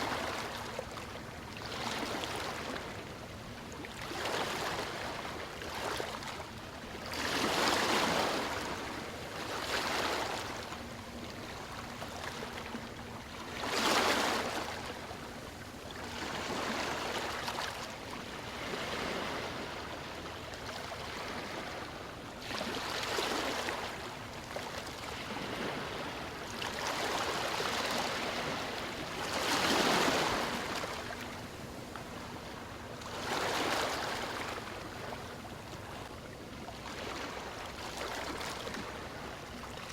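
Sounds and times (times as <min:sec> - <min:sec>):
ocean waves breaking: 0:07.1 - 0:15.4, 0:16.0 - 0:36.1.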